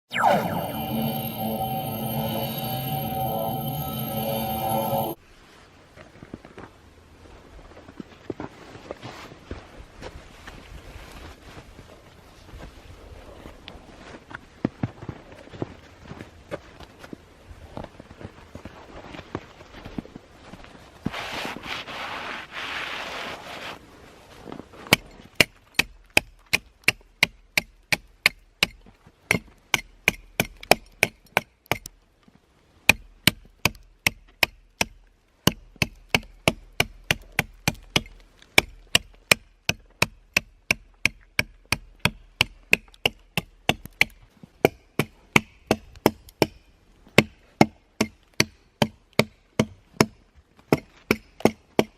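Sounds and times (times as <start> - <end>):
rushing noise: 0.0 - 5.2
wood being chopped: 32.9 - 46.6.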